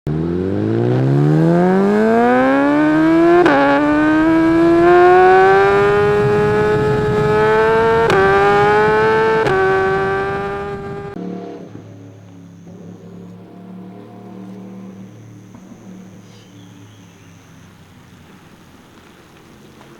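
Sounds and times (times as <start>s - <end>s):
motorcycle engine accelerating: 0.0s - 19.9s.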